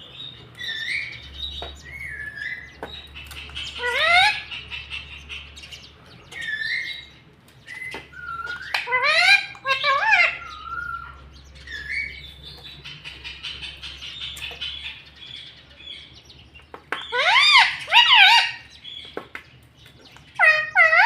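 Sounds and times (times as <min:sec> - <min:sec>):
parrot loud calls: 0:03.6 - 0:05.1, 0:07.7 - 0:12.2, 0:17.1 - 0:18.7, 0:20.4 - 0:21.0.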